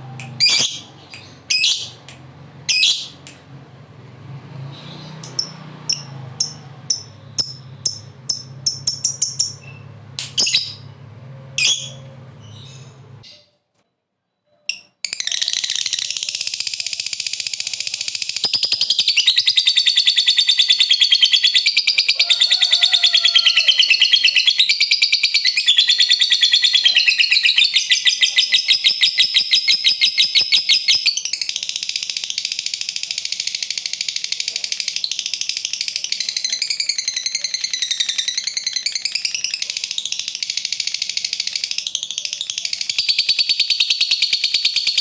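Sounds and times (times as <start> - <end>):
bird chattering trill: 0.3 - 2.0, 5.3 - 9.8, 15.1 - 45.0.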